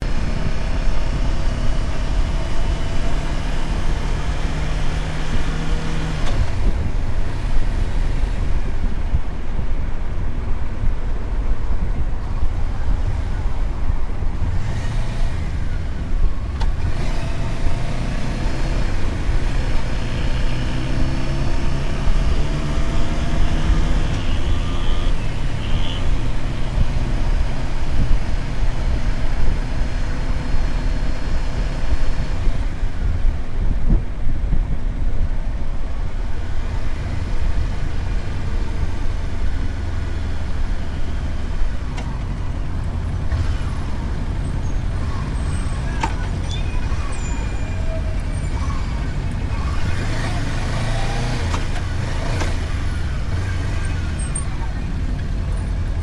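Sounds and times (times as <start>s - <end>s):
motorcycle engine running: 0.0s - 56.0s
road noise: 0.0s - 56.0s
wind rush: 6.4s - 17.7s.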